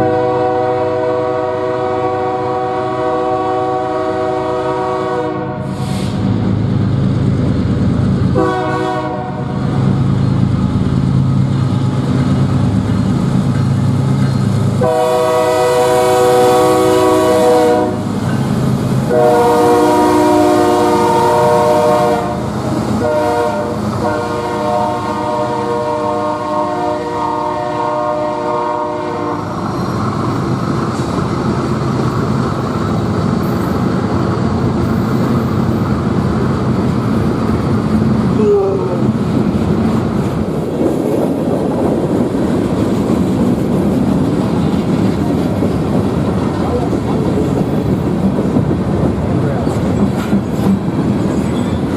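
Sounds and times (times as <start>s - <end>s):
locomotive air horn: 0.0s - 6.2s, 8.4s - 9.6s, 14.8s - 18.1s, 19.1s - 29.6s
passing train rumble: 0.0s - 51.9s.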